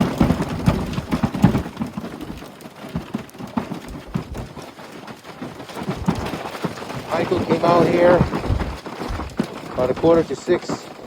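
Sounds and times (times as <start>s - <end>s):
footsteps crunching in snow: 7.0s - 11.0s.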